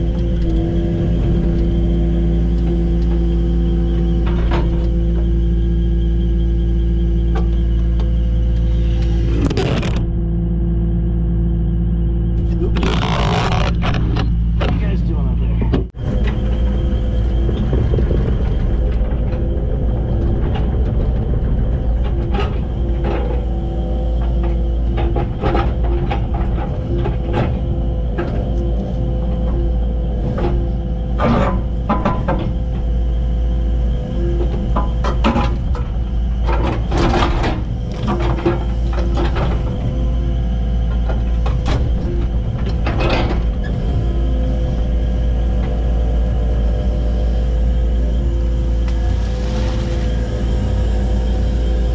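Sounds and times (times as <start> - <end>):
excavator diesel engine: 0.0 - 51.9
hydraulic whine: 0.0 - 51.9
bucket scraping earth and rock: 12.4 - 15.0, 48.9 - 50.8.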